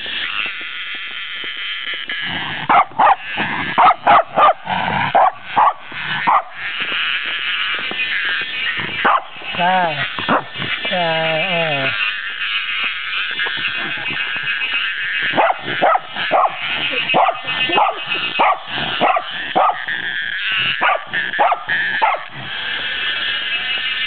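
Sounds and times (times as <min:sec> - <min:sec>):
cicada buzzing: 0:00.0 - 0:24.0
dog barking: 0:02.7 - 0:03.2, 0:03.8 - 0:06.5, 0:09.0 - 0:09.3, 0:15.4 - 0:19.9, 0:20.8 - 0:22.3.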